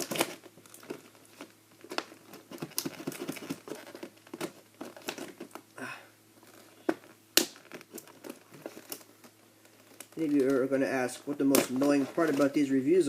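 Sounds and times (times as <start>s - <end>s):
packaging clicks: 0.0s - 5.6s, 6.5s - 10.7s
toy packaging crinkling: 0.0s - 5.6s, 6.4s - 13.0s.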